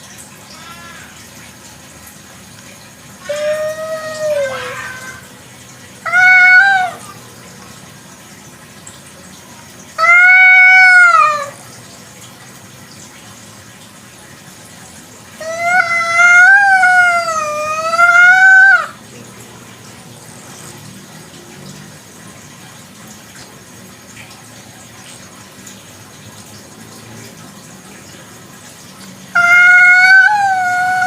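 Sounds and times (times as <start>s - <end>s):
cat meowing: 3.2s - 5.2s, 6.1s - 7.2s, 10.0s - 11.6s, 15.4s - 19.0s, 29.4s - 31.0s.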